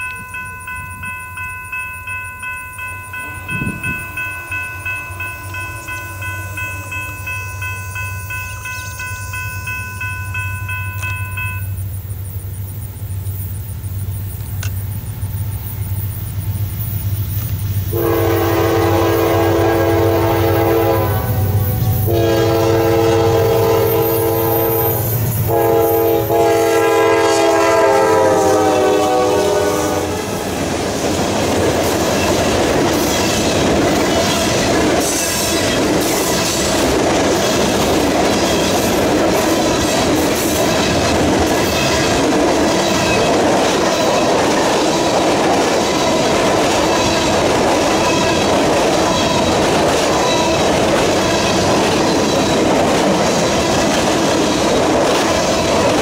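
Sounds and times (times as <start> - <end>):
locomotive air horn blasts: 17.9 - 30.4.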